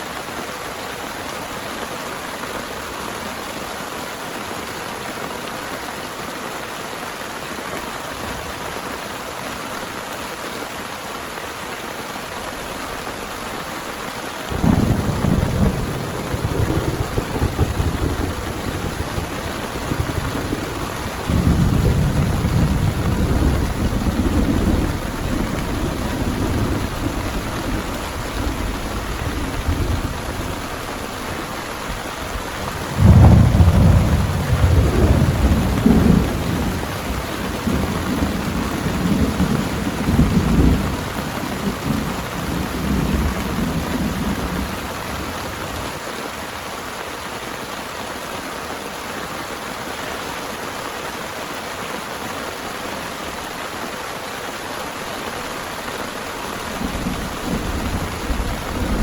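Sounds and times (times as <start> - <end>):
heavy rain: 0.0 - 59.0
thunder rumbling: 14.5 - 46.0, 56.6 - 59.0.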